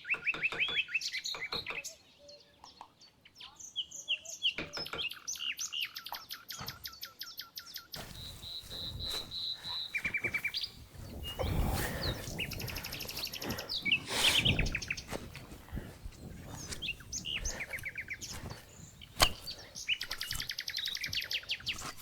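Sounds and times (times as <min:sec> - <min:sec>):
birds singing and chirping: 0:00.0 - 0:22.0.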